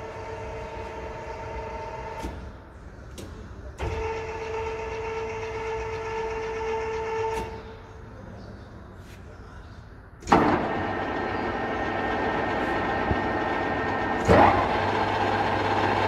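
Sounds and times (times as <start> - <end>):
lathe gear whine: 10.4 - 16.0.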